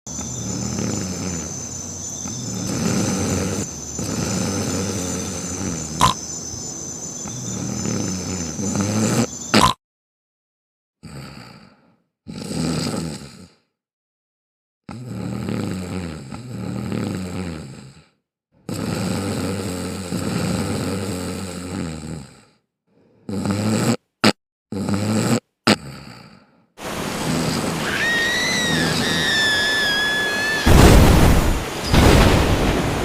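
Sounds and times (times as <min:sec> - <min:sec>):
person snoring: 0:00.3 - 0:01.7, 0:02.3 - 0:06.2, 0:07.4 - 0:09.4, 0:11.0 - 0:13.7, 0:14.9 - 0:27.8.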